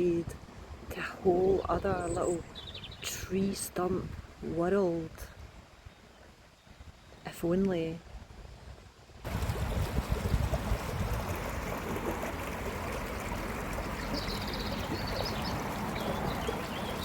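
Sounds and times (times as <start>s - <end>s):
running water rushing: 9.2s - 17.0s
high bird chirps: 13.9s - 17.0s.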